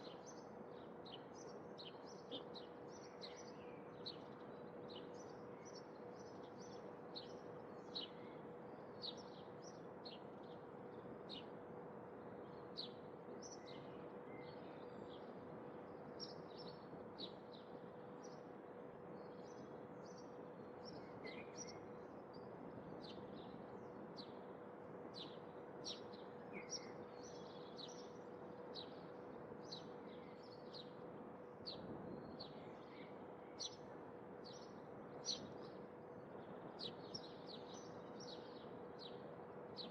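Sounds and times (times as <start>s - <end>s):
small birds chirping: 25.1s - 31.0s, 31.6s - 39.9s.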